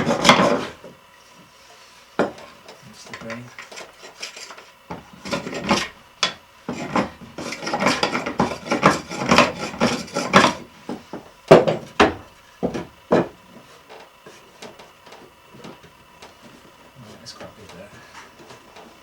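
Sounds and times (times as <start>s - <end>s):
hand plane shaving wood: 0.0s - 0.8s, 3.7s - 6.0s, 6.7s - 10.7s.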